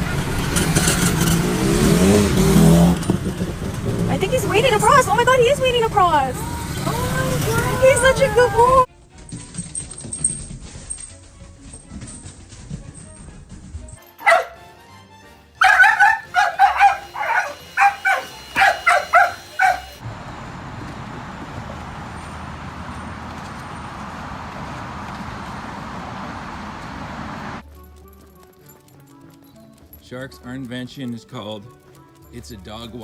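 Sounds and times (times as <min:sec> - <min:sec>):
dog barking: 0:14.2 - 0:14.6, 0:15.6 - 0:20.0.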